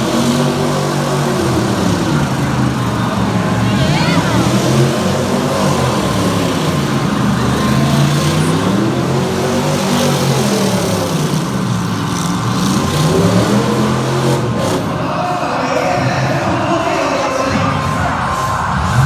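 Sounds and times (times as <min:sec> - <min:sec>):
engine revving: 0:00.0 - 0:15.2
steady background roar: 0:00.0 - 0:19.0.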